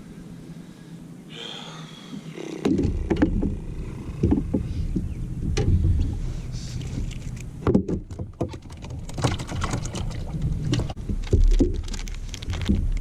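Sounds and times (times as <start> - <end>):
low rumble: 2.0 - 7.7
fishing tackle clicks and knocks: 7.0 - 13.0.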